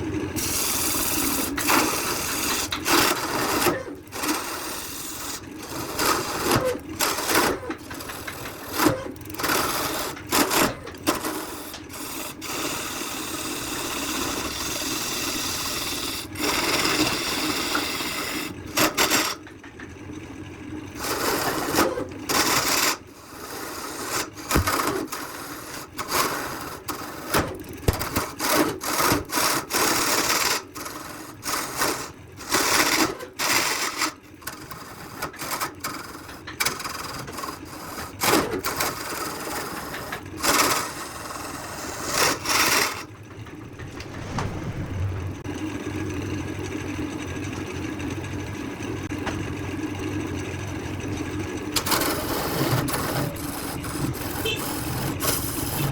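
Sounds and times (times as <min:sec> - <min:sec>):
hand tools scraping wood: 0:51.9 - 0:55.9.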